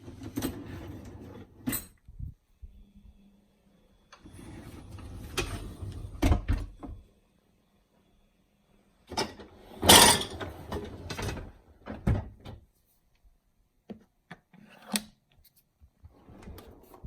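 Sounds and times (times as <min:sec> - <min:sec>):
dishwasher rack rattling slide: 0:09.2 - 0:11.5.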